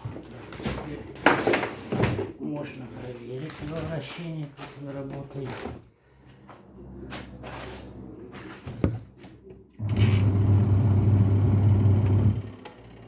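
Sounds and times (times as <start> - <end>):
washing machine motor humming: 9.8 - 13.0.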